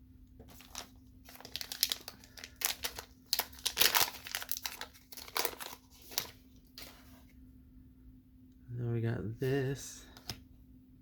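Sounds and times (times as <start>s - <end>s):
foil wrapper crinkling: 0.5s - 6.9s.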